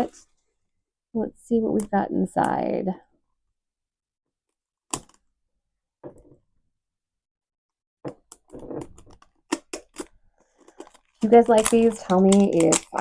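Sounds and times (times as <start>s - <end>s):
plastic packaging clicks: 8.1s - 13.0s
packaging rustle: 9.1s - 13.0s.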